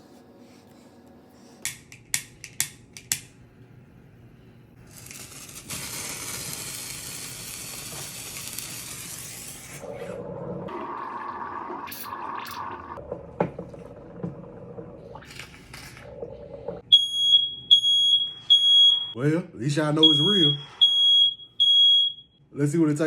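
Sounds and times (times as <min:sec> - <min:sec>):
sparkler fizzing: 0:04.9 - 0:09.8.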